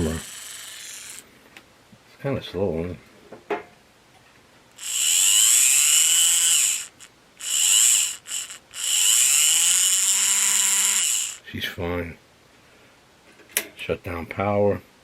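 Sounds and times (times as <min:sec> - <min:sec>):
small electric motor whining: 0:00.0 - 0:01.2, 0:04.8 - 0:11.4.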